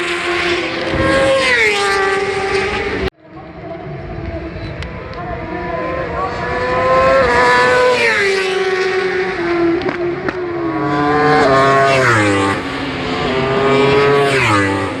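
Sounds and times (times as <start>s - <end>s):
superbike engine at high revs: 0.0s - 3.1s, 5.3s - 15.0s.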